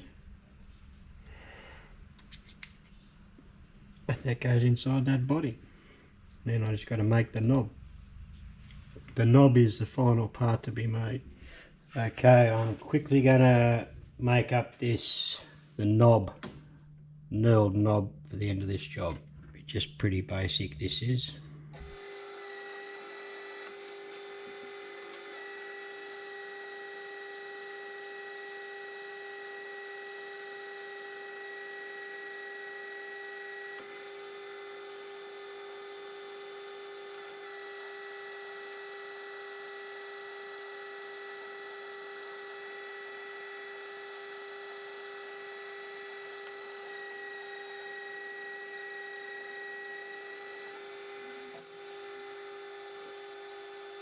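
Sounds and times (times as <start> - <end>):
metal lathe whining: 21.7 - 54.0.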